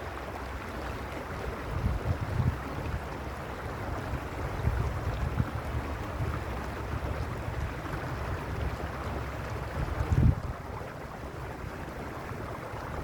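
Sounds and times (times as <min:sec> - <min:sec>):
stream water rushing over stones: 0:00.0 - 0:13.0
wind rumble on microphone: 0:00.0 - 0:13.0.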